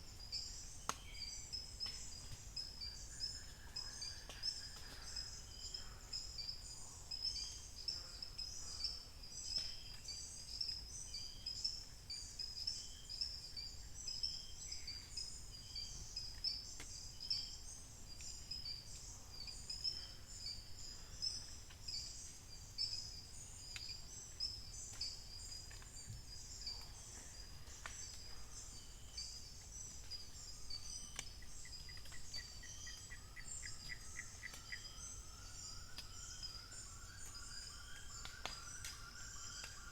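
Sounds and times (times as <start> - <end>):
birds chirping: 25.4 - 39.9.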